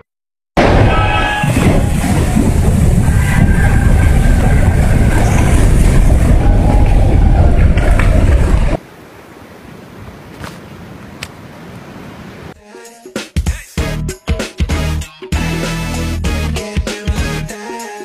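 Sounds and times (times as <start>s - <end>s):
snow sliding off a roof: 1.5s - 8.8s.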